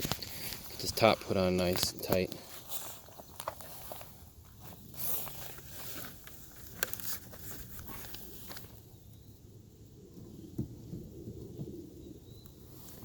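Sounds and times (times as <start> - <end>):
rustling: 0.0 - 8.9.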